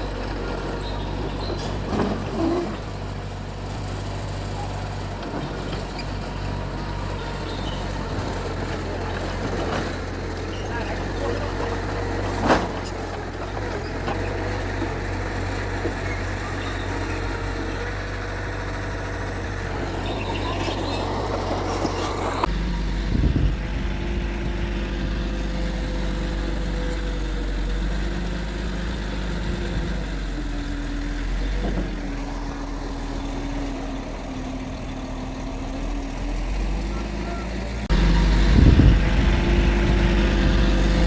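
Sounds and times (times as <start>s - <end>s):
bulldozer diesel engine running: 0.0s - 41.0s.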